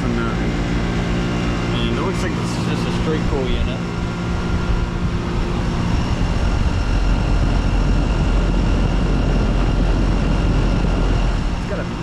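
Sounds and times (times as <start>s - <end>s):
compressor hum: 0.0s - 12.0s
condenser fan rushing: 0.0s - 12.0s
low rumble: 0.0s - 12.0s.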